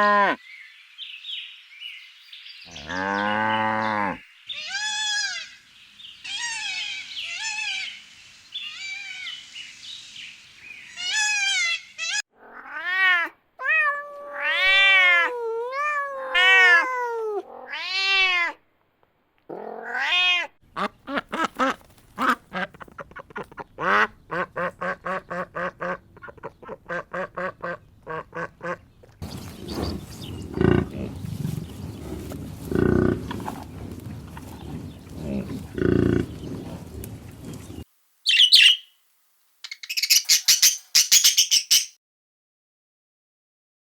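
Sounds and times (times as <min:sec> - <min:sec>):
cat meowing: 0:12.4 - 0:18.6, 0:19.8 - 0:20.5
duck quacking: 0:20.7 - 0:28.9.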